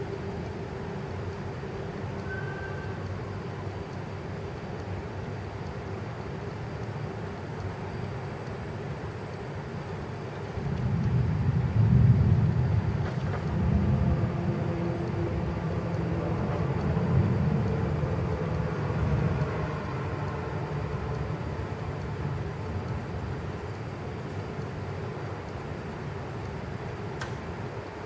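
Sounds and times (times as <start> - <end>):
rolling thunder: 10.6 - 18.3.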